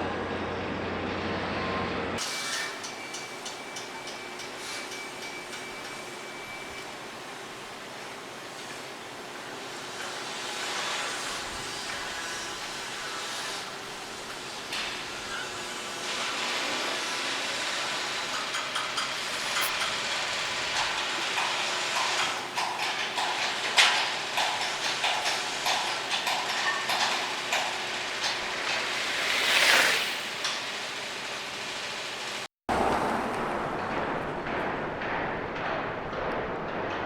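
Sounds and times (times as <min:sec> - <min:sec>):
metal clanks and knocks: 0:20.6 - 0:29.4, 0:33.8 - 0:37.0.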